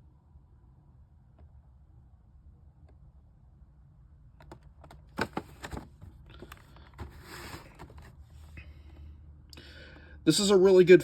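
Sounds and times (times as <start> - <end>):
faint low hum: 0.0 - 11.0
packaging clicks and knocks: 4.4 - 8.1
packaging rustling and rubbing: 5.2 - 8.5.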